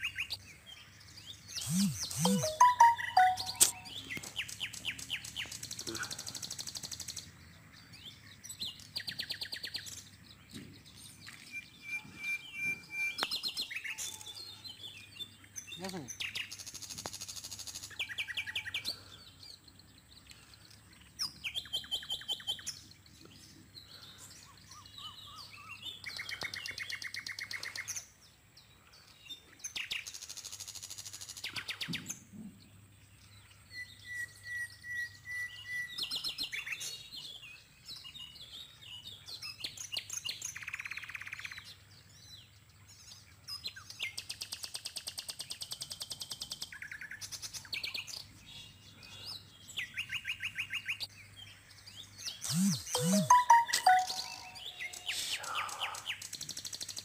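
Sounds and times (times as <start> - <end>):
birds trilling and chirping: 0.1 - 6.6, 46.9 - 56.6
steady whistled bird note: 1.6 - 3.9, 52.5 - 54.7.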